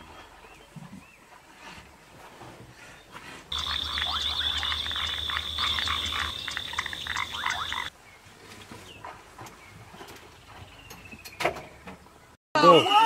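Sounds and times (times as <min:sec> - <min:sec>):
shrill animal chirps and squeaks: 0:03.5 - 0:07.9
high-pitched whine: 0:03.6 - 0:07.9.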